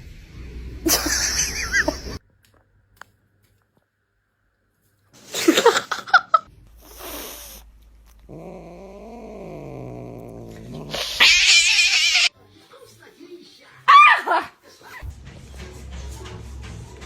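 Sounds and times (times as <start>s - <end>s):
cat yowling and crying: 10.9s - 12.3s, 13.9s - 14.5s.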